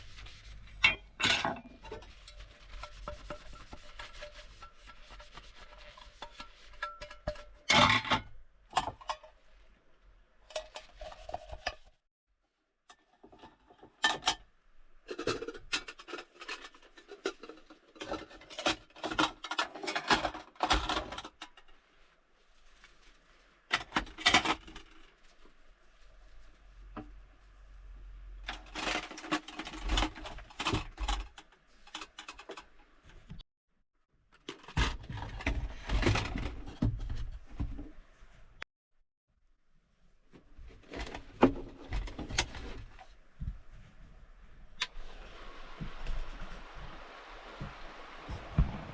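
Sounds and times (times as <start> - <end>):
objects clattering and clicking: 0.7 - 9.4, 15.0 - 21.8, 23.7 - 25.2, 28.4 - 33.4, 34.3 - 37.9.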